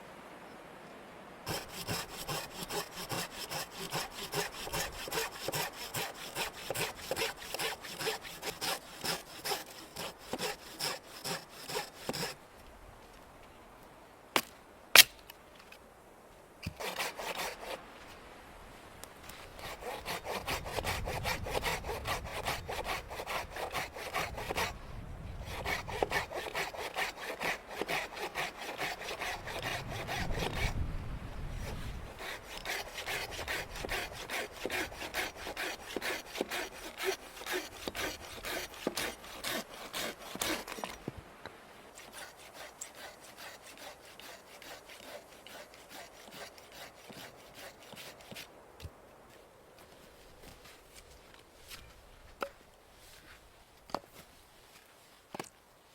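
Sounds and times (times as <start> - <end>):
hand saw cutting wood: 1.5 - 12.4, 16.6 - 17.8, 19.2 - 24.8, 25.4 - 30.8, 31.5 - 41.1, 42.0 - 48.5.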